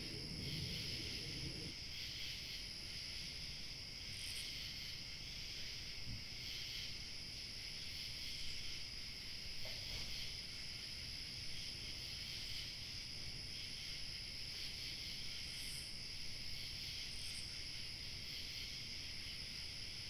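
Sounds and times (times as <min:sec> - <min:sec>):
low wind rumble: 0:00.0 - 0:01.8
crickets chirping: 0:00.0 - 0:20.0
high-pitched insect trill: 0:14.6 - 0:20.0.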